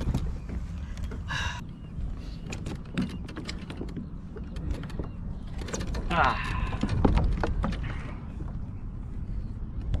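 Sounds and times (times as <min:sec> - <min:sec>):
steady low rumble: 0:03.9 - 0:10.0.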